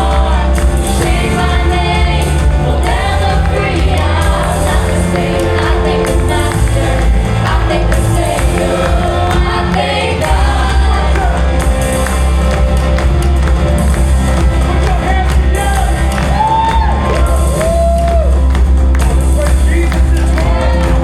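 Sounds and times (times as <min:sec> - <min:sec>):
people singing: 0:00.0 - 0:12.8, 0:19.1 - 0:21.0
congregation singing: 0:00.0 - 0:17.6, 0:19.2 - 0:21.0
bass guitar: 0:00.0 - 0:21.0
drums: 0:00.0 - 0:21.0.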